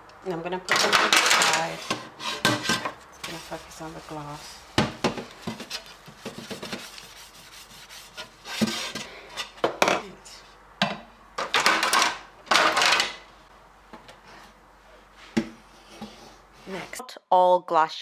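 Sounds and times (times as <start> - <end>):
rubbing or hissing bursts: 5.6 - 9.0.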